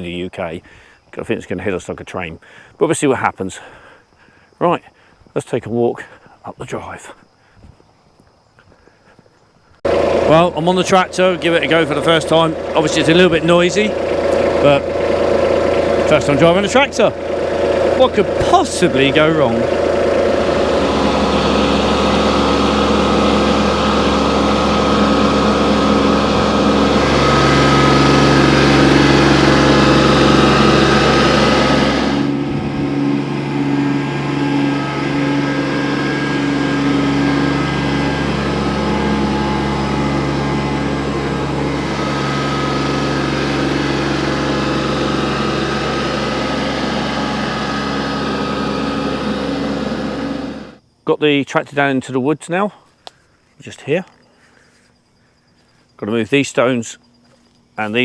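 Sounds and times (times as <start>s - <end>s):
tractor engine running: 9.8s - 50.8s.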